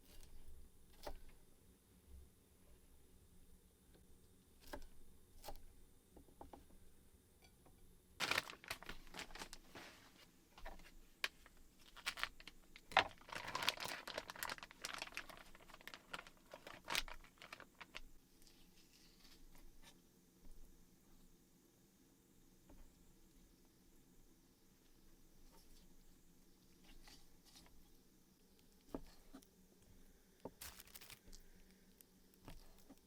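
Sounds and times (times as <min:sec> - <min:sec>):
small irregular clicks and knocks: 0:03.9 - 0:06.8
crinkling and rustling: 0:08.2 - 0:20.0, 0:30.4 - 0:33.0.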